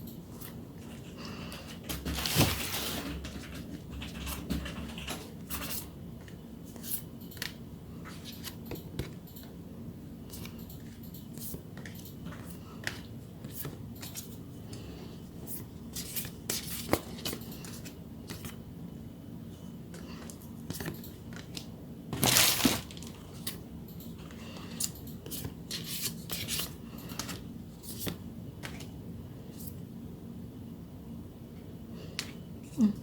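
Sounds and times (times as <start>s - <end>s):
plastic packaging rustling: 21.4s - 23.4s.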